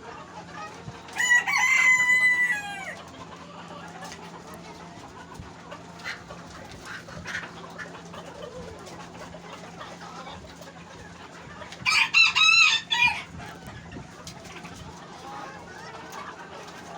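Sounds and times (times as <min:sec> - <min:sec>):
rooster crowing: 0:01.2 - 0:03.0, 0:11.8 - 0:13.3.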